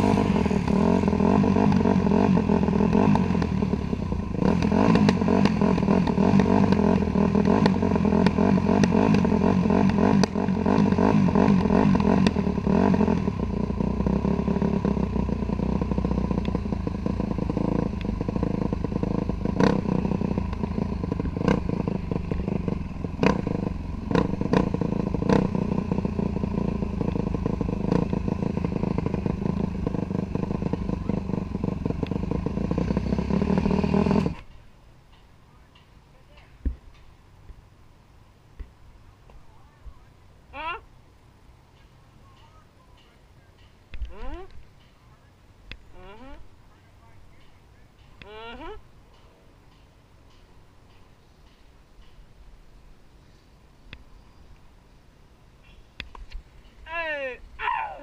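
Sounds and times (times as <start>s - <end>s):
dirt bike engine running: 0.0s - 34.5s
sharp clicks and knocks: 49.1s - 52.3s.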